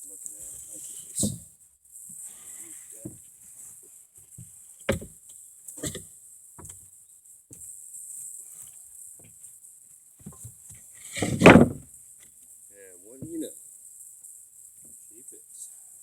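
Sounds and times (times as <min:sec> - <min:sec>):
steady high hiss: 0:00.0 - 0:16.0
knocks and clunks: 0:04.9 - 0:05.1, 0:05.8 - 0:06.0, 0:11.1 - 0:11.8.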